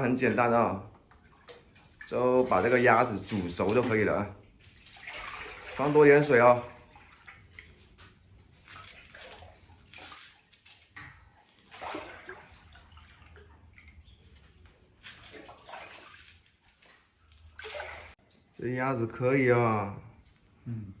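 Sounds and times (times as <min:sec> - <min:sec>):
water pouring into a pot: 0:01.8 - 0:07.8.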